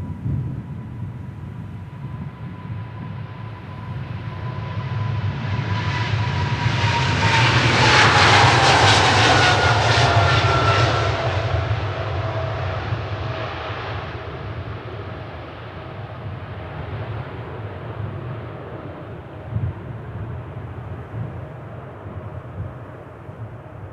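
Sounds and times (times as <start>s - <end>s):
jet engines passing by: 0.0s - 23.9s.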